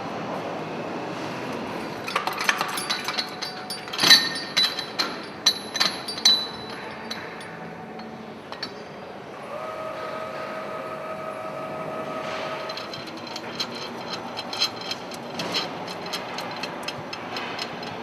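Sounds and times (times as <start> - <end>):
metal parts clinking: 1.8 - 9.0, 12.2 - 18.0.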